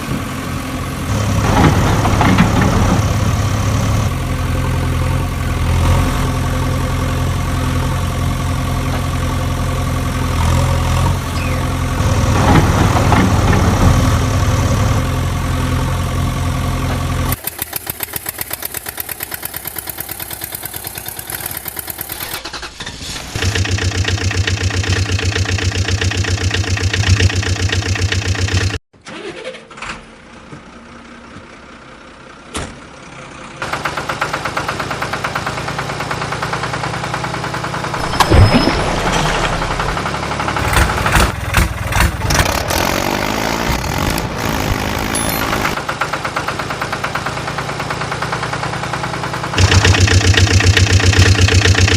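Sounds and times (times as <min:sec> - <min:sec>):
vehicle engine idling: 0:30.1 - 0:38.2, 0:39.6 - 0:43.4, 0:45.1 - 0:51.9.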